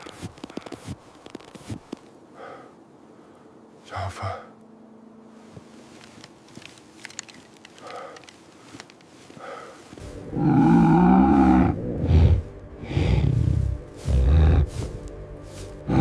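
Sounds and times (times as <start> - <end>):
faint clicks: 0.0 - 2.2, 5.6 - 10.0
large animal roaring: 10.2 - 14.7.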